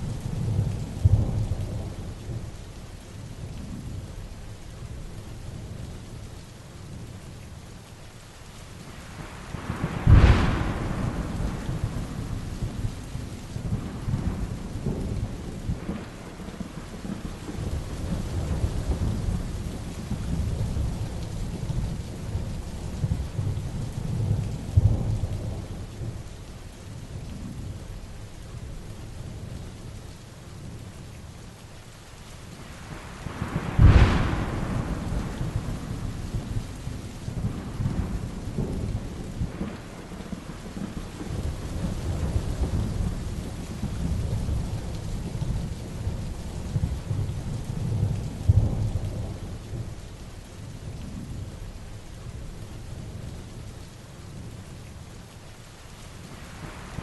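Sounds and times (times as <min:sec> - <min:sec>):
heavy rain falling: 0:00.0 - 0:57.0
thunder rumbling: 0:09.2 - 0:26.3, 0:32.7 - 0:50.1
sharp close thunderclap: 0:09.5 - 0:21.2, 0:32.9 - 0:50.0.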